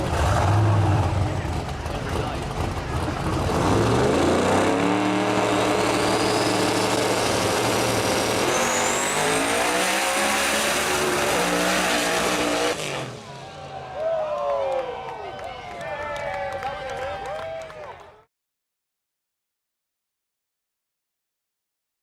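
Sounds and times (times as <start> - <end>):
race car engine at full throttle: 0.0 - 14.0
high whine: 4.6 - 12.6.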